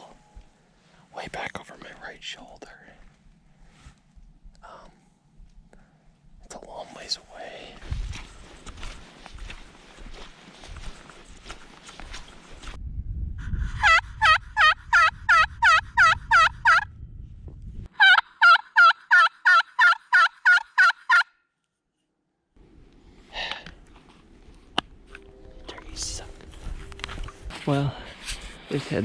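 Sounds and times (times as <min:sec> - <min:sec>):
turkey call yelps: 0:13.8 - 0:16.8, 0:18.0 - 0:21.3.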